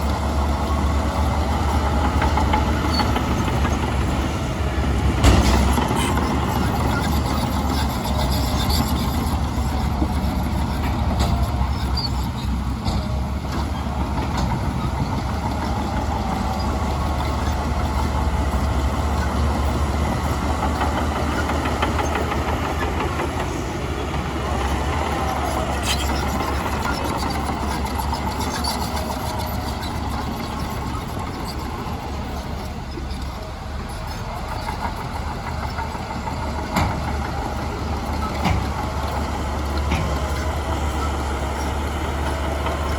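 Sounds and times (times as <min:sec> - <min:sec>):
heavy machinery diesel engine: 0:00.0 - 0:42.9
sharp knocks: 0:05.1 - 0:07.1.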